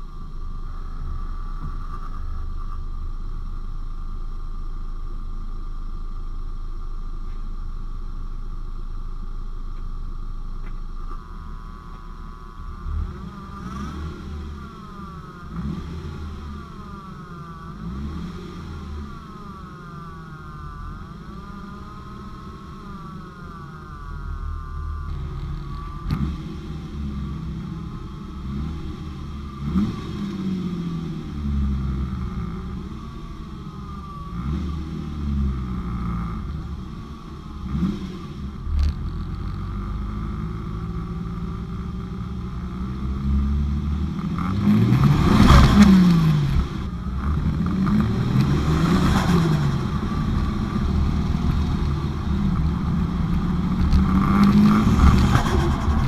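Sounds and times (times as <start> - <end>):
turbocharged engine revving: 10.7 - 56.0.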